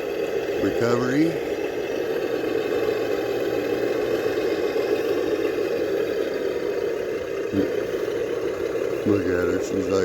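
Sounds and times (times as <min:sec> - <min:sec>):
toy car electric motor running: 0:00.0 - 0:10.0.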